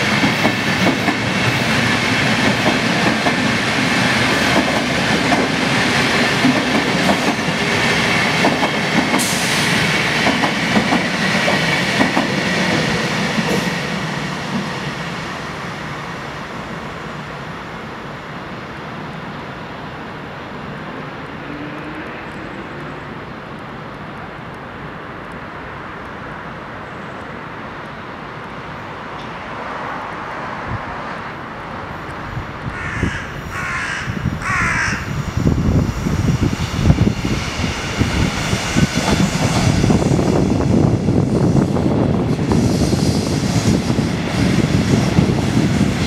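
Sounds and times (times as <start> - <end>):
train wheels knocking on rails: 0.0 - 14.7, 37.9 - 41.0
train rumble: 0.0 - 46.0
crow cawing: 32.7 - 35.1.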